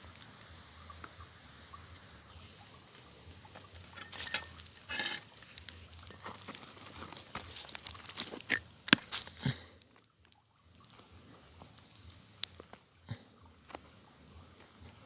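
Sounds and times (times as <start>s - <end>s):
gravel crunching from digging: 3.4s - 9.9s.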